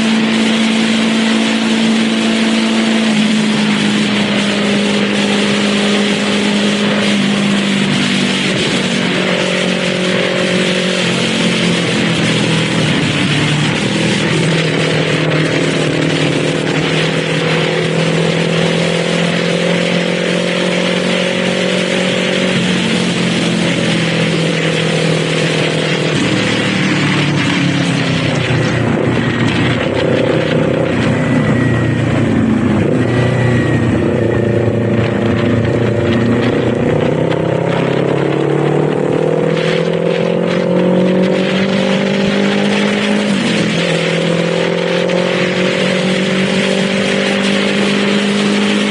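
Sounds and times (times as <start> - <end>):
motorcycle engine revving: 0.0 - 48.9
wind rush: 0.0 - 48.9.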